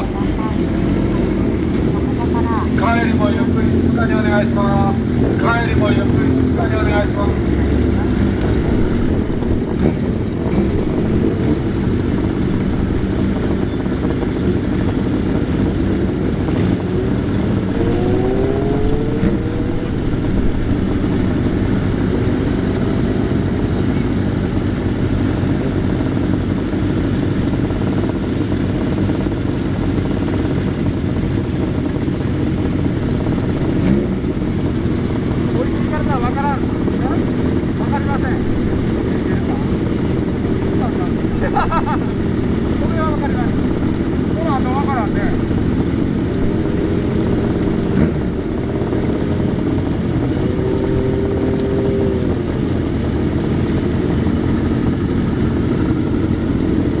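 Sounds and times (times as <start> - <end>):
engine revving: 0.0 - 57.0
motorcycle engines running: 0.0 - 57.0.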